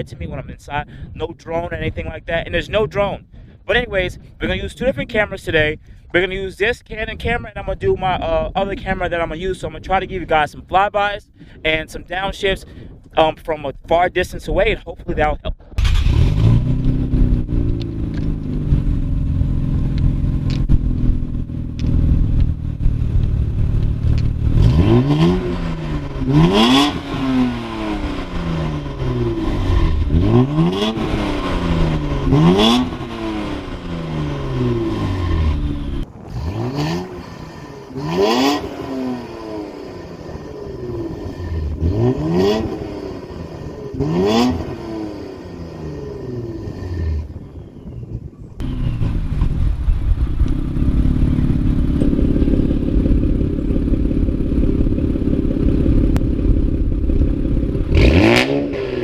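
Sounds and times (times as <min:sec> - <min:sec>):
exhaust cracks: 0:15.3 - 0:59.0
car engine revving: 0:15.8 - 0:47.5, 0:48.6 - 0:59.0.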